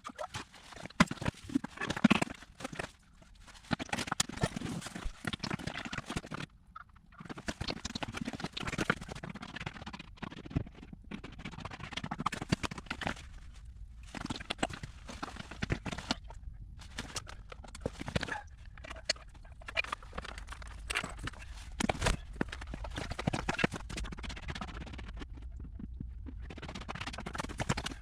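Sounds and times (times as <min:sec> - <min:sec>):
irregular clicking and knocking: 0:14.0 - 0:28.0.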